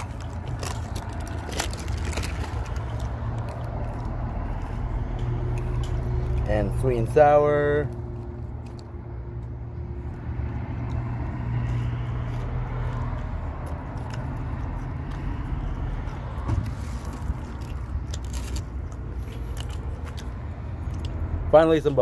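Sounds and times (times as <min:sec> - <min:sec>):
plastic cup crinkling: 0:00.0 - 0:04.6
small crackles: 0:00.0 - 0:04.6
chewing food: 0:00.0 - 0:21.9.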